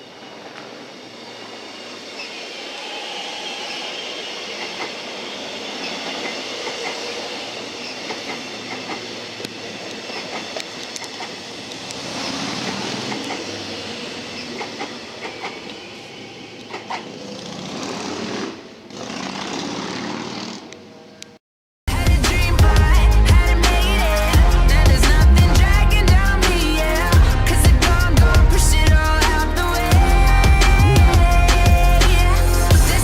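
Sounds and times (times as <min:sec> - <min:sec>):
train rumble: 0:00.0 - 0:20.7, 0:21.9 - 0:33.0
train wheels clicking over rail joints: 0:04.4 - 0:20.8.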